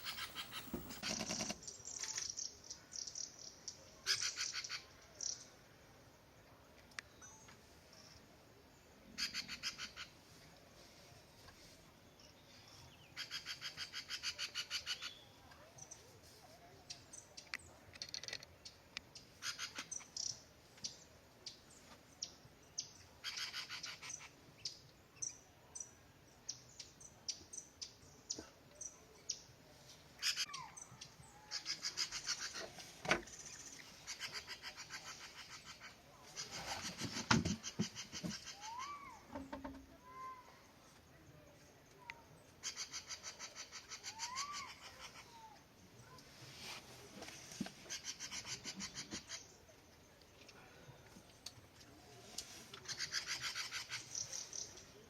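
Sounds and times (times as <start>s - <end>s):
rapid rattling bird trills: 0.0s - 2.4s, 31.5s - 39.0s, 47.9s - 49.5s, 52.8s - 54.7s
birds calling and chirping: 0.0s - 5.5s, 30.2s - 40.3s.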